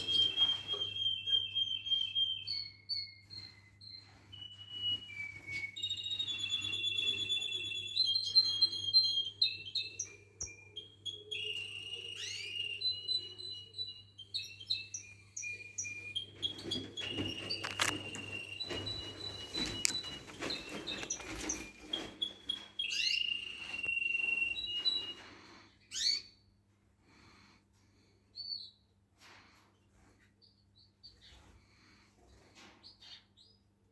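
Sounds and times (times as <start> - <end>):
canary singing trills: 0.0 - 25.2.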